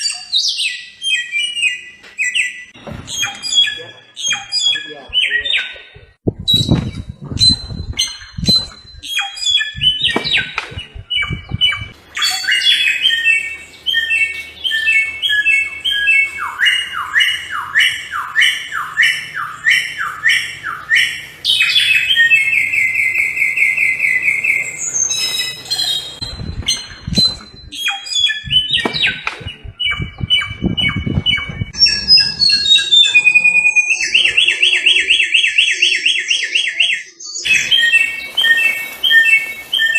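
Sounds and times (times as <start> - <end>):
songbird singing: 0.0 - 39.9
low rumbling noise: 6.2 - 9.1, 9.7 - 12.1, 26.2 - 27.8, 28.4 - 34.6.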